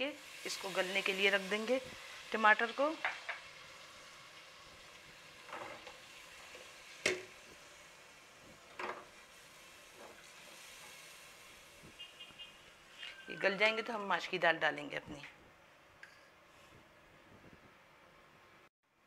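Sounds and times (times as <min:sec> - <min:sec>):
tomatoes sizzling in oil: 0:00.0 - 0:14.5.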